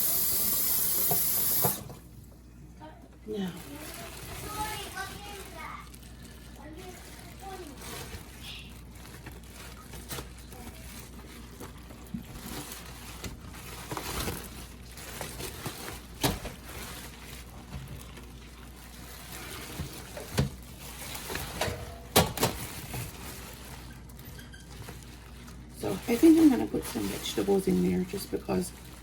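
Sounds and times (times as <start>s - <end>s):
water trickling in a sink: 0.0s - 2.0s.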